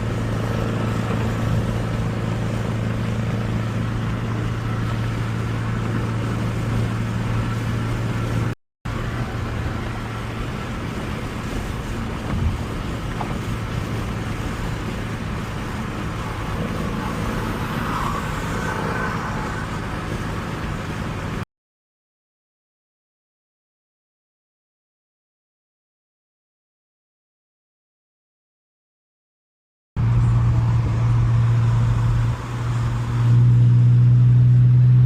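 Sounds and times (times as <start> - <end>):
car engine droning: 0.0 - 21.4, 30.0 - 35.0.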